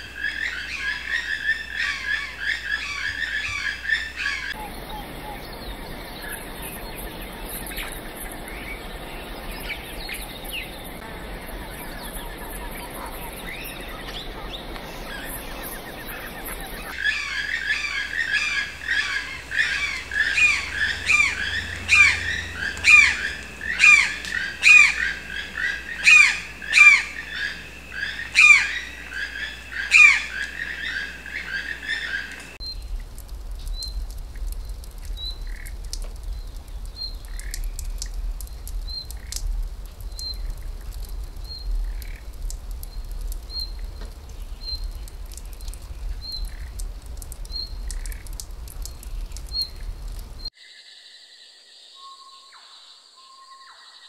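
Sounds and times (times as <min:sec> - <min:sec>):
bird squawking: 0:16.0 - 0:32.4.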